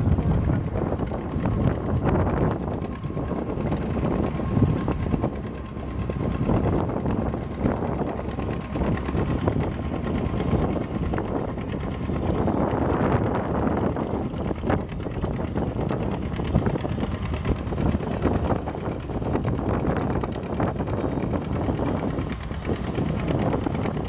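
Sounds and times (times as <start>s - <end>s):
tractor engine running hard: 0.0s - 24.0s.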